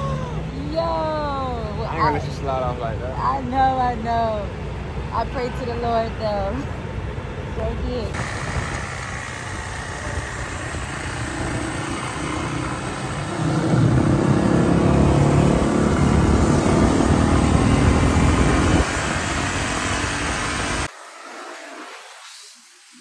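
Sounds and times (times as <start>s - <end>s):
dirt bike engine running: 8.1s - 20.9s.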